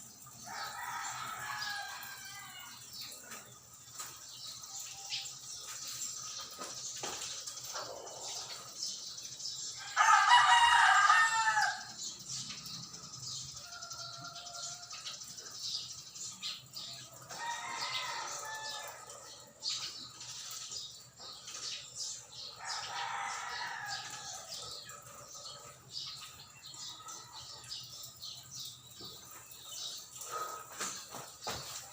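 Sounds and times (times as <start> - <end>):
rooster crowing: 0.4 - 2.8, 9.8 - 12.0, 13.6 - 15.0, 17.3 - 19.2, 22.6 - 24.7.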